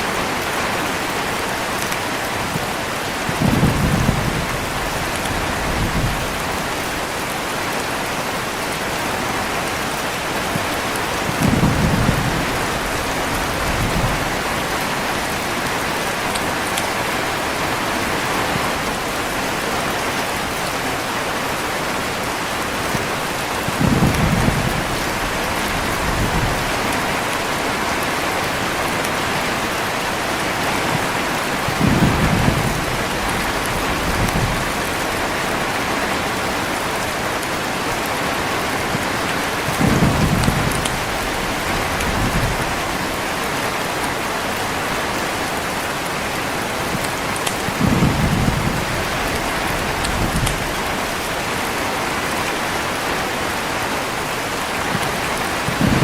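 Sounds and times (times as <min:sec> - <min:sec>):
heavy rain falling: 0:00.0 - 0:56.0
low thunder rumbles: 0:03.2 - 0:07.3, 0:10.4 - 0:17.2, 0:22.9 - 0:27.8, 0:30.8 - 0:35.9, 0:39.5 - 0:43.2, 0:46.9 - 0:51.6, 0:55.5 - 0:56.0.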